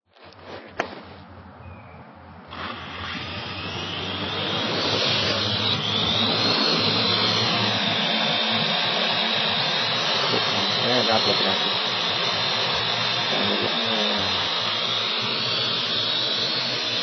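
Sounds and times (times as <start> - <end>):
drone propellers whirring: 2.1 - 17.0.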